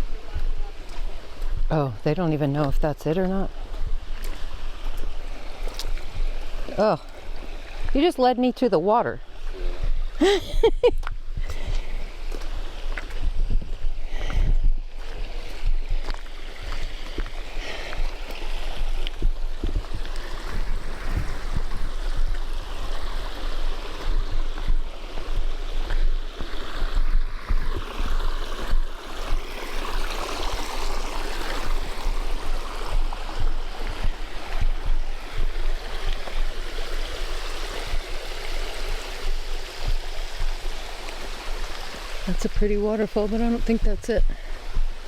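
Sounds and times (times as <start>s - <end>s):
water rushing over waterfall: 15.0s - 44.0s.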